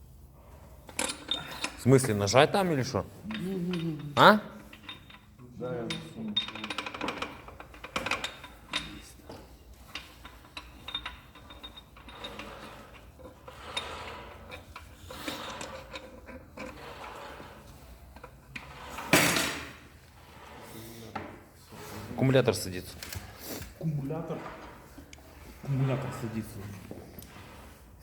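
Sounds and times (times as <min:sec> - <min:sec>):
metal clinks and scraping: 0:00.9 - 0:20.7.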